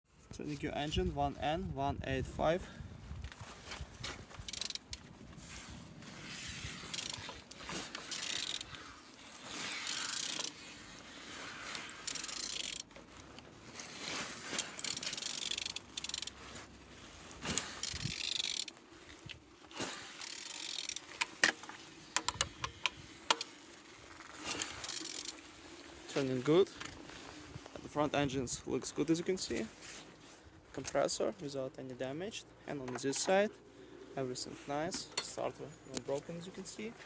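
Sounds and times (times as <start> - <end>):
engine turned by hand whirring: 6.0 - 13.4, 17.4 - 18.8.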